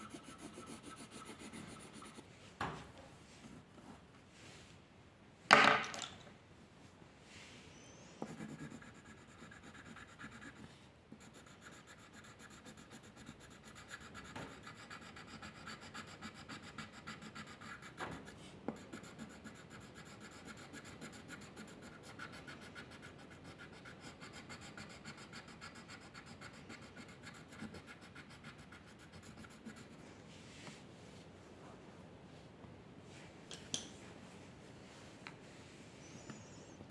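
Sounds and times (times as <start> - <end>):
pencil scratching on paper: 0.0 - 2.3, 8.3 - 30.0.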